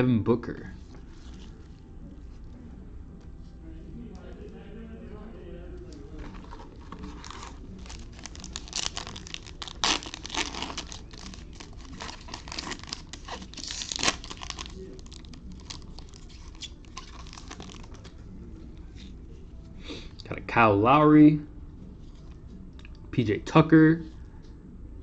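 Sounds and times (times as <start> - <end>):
foil wrapper crinkling: 6.2 - 18.1
foil wrapper ripping: 6.3 - 18.1.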